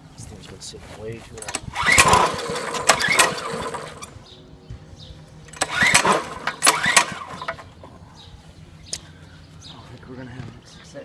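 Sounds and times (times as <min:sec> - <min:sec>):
recoil starter whirring: 0:01.4 - 0:04.2, 0:05.5 - 0:08.0.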